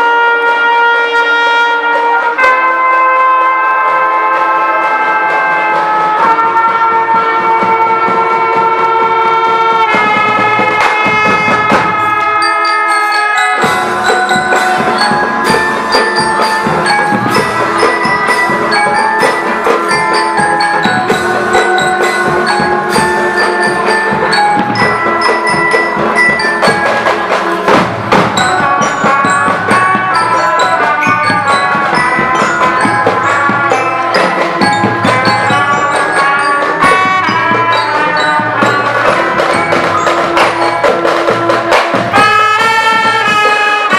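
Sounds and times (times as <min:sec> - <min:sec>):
mallet percussion melody: 0:00.0 - 0:43.9
marching band playing: 0:00.0 - 0:43.9.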